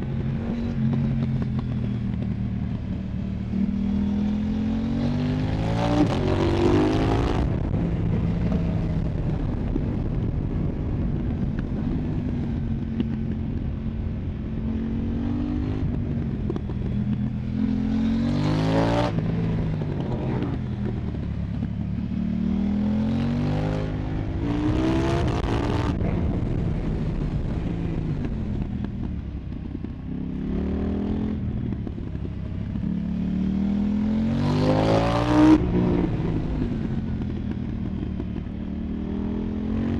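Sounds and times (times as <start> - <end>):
motorcycle engine revving: 0.0 - 39.9
wind rush: 5.3 - 22.0, 22.7 - 32.6, 34.4 - 38.6.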